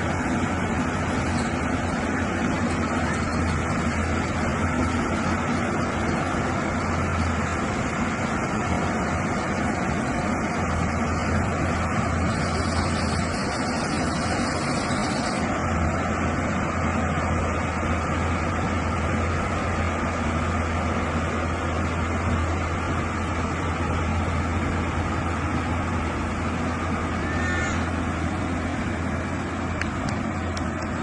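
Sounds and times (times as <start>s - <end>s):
diesel machinery rumbling: 0.0s - 31.0s.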